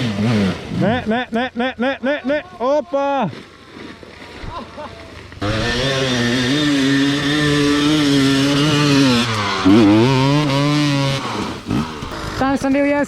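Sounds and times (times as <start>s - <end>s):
dirt bike engine at high revs: 0.0s - 1.4s, 5.4s - 13.0s.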